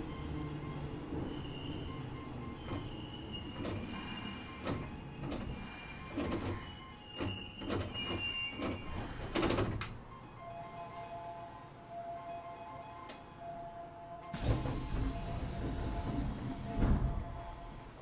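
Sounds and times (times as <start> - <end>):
train wheels squealing: 0.1 - 9.2, 14.3 - 17.7.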